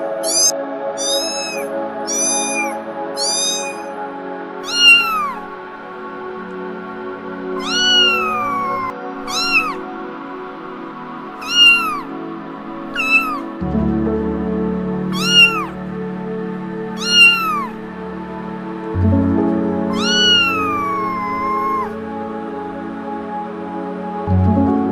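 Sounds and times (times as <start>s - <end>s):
kitten meowing: 0.0s - 3.9s, 4.6s - 5.5s, 7.6s - 9.8s, 11.4s - 12.1s, 12.9s - 13.6s, 15.1s - 15.8s, 17.0s - 17.8s, 19.9s - 22.0s
soft background music: 0.0s - 24.9s.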